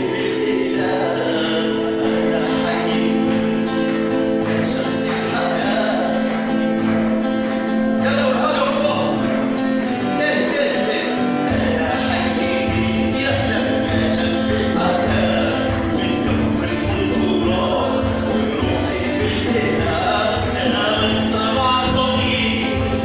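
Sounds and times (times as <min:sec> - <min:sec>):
person singing a hymn: 0:00.0 - 0:03.6, 0:11.5 - 0:23.0.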